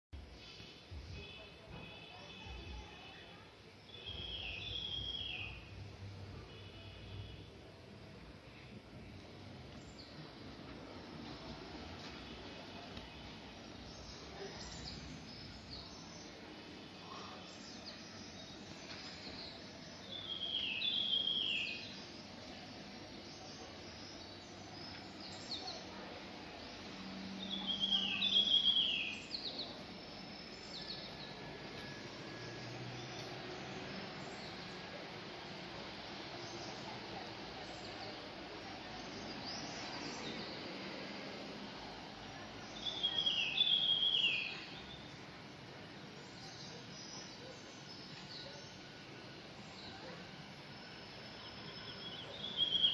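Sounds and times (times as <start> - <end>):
steady outdoor hiss: 0.2 - 52.9
birds chirping: 3.8 - 7.7, 8.3 - 52.9
high bird chirps: 51.5 - 52.9.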